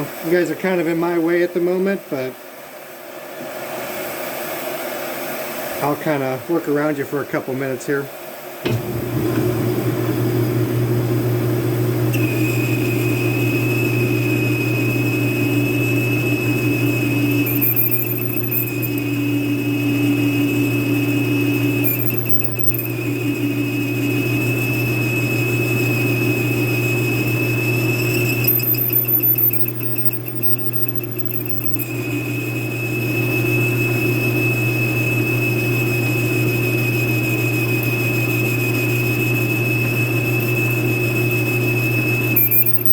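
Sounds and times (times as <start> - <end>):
metal lathe motor humming: 8.7 - 42.9
high-pitched cutting squeal: 15.6 - 34.5, 42.3 - 42.9.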